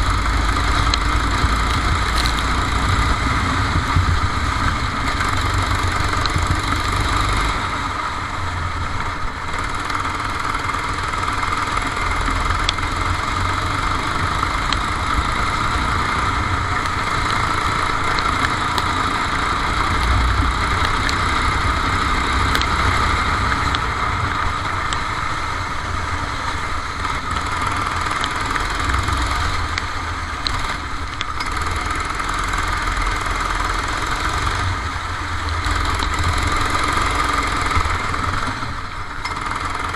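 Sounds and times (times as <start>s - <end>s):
heavy low rumble: 0.0s - 31.5s
kart engine running: 0.0s - 39.9s.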